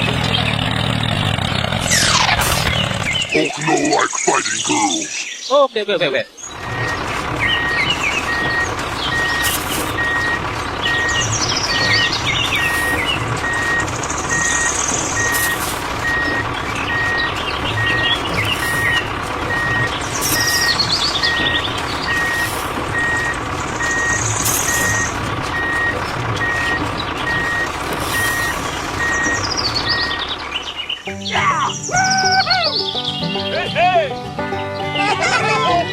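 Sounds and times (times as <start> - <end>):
vehicle engine running: 0.0 - 5.4, 6.4 - 35.9
birds chirping: 0.0 - 35.9
reversing alarm beeping: 6.5 - 30.4.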